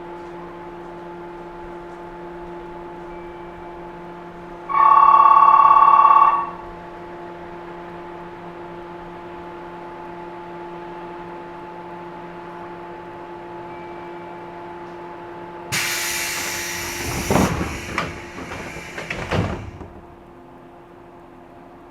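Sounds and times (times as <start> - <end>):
train car electrical hum: 0.0 - 21.9
electric bell ringing: 4.7 - 6.6.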